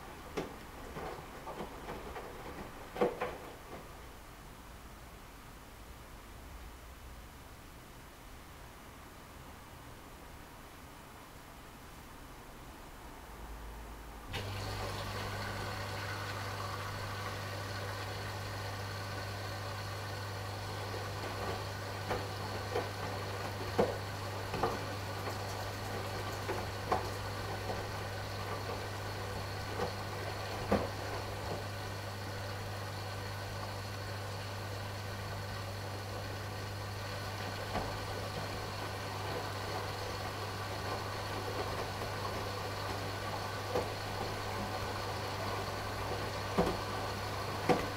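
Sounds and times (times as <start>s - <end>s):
washing machine humming: 0.0s - 5.3s, 14.1s - 47.9s.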